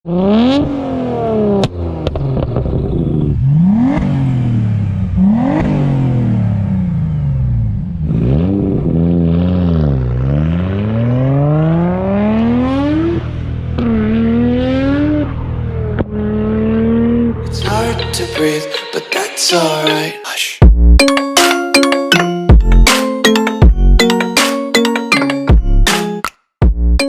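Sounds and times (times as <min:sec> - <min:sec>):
car engine revving hard: 0:00.1 - 0:17.4.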